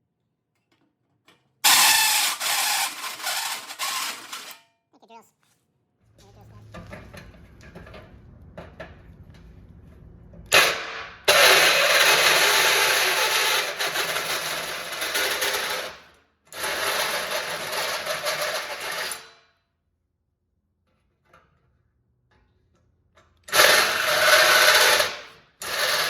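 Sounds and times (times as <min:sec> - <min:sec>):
power tool cutting metal: 0:01.7 - 0:04.6, 0:10.5 - 0:15.9, 0:23.5 - 0:26.0.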